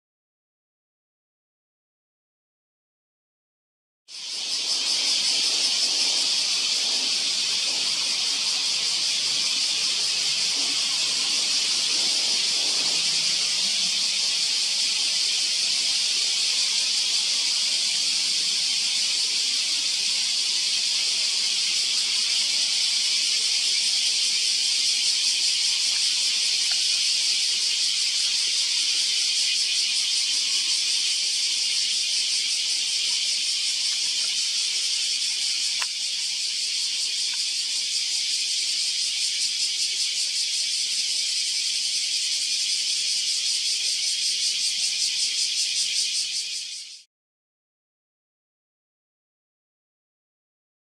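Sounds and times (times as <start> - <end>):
cicadas chorus: 4.1 - 47.1.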